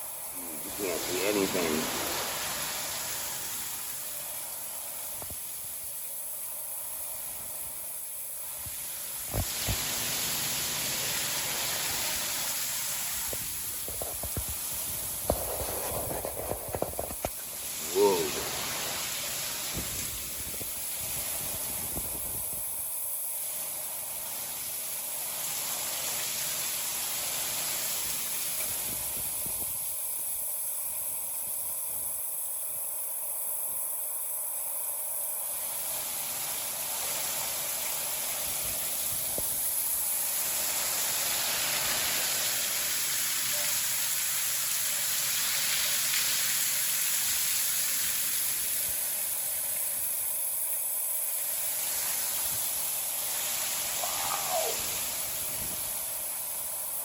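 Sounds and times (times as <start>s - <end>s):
wind: 0.0s - 57.0s
heavy rain: 0.2s - 5.2s, 8.7s - 22.8s, 36.2s - 50.0s, 51.6s - 57.0s.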